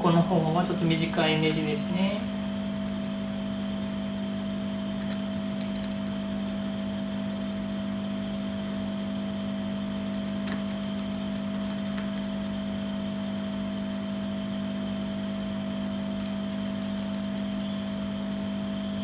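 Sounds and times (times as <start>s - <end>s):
machine hum: 0.0s - 19.0s
high whine: 10.8s - 19.0s.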